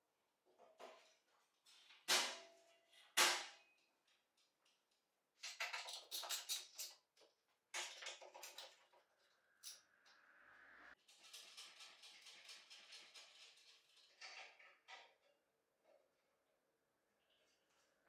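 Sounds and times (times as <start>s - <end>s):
hard parts clattering and rattling: 7.8s - 9.8s, 11.0s - 15.4s.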